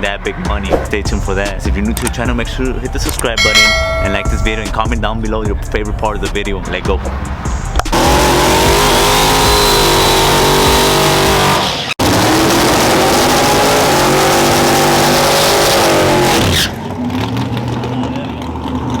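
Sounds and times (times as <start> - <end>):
truck engines at full throttle: 4.8 - 19.0.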